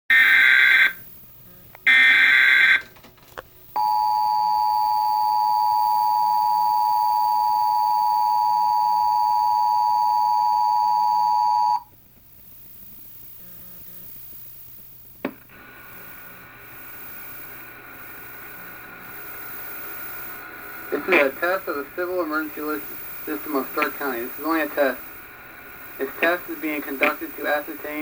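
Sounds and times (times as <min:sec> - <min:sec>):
two-tone attention signal: 0:03.8 - 0:11.8.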